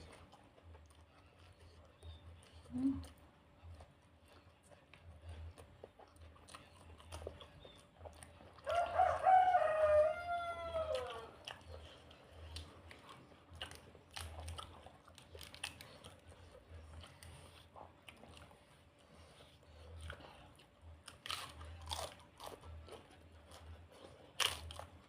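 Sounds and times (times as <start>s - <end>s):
person chewing food: 0.0s - 25.0s
rooster crowing: 8.6s - 11.5s.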